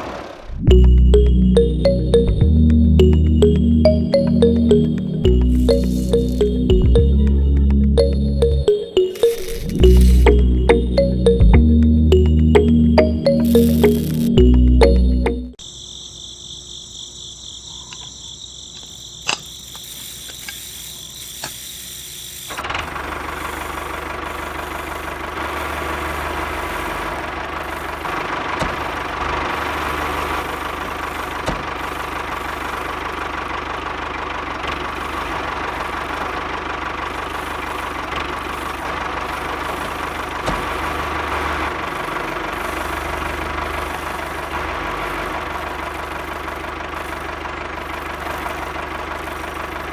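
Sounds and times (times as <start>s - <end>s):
small motor running: 19.7s - 49.9s.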